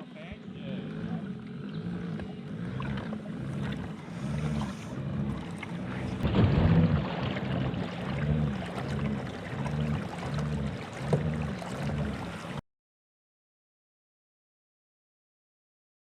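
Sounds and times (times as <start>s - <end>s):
boat engine pulsing hum: 0.0s - 12.6s.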